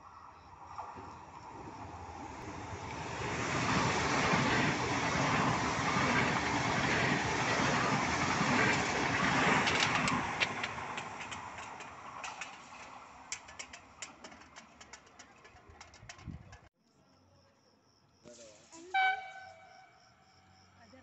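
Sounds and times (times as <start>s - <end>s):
high-speed train passing: 0.2s - 16.5s.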